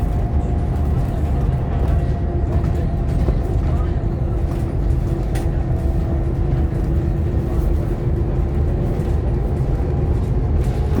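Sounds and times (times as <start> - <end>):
bus diesel engine drone: 0.0 - 11.0
road rumble: 0.0 - 11.0.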